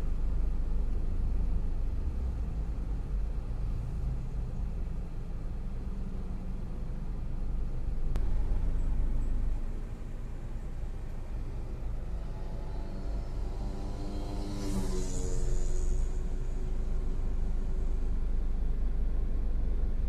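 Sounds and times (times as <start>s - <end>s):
electric train rumble: 7.5s - 20.0s.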